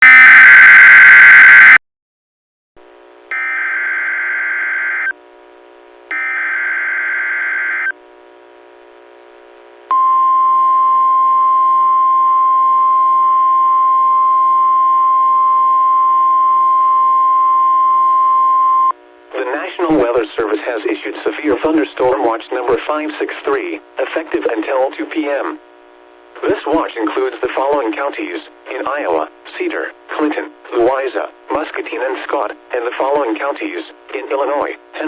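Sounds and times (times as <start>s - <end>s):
steady warning alarm tone: 3.3s - 5.1s, 6.1s - 7.9s.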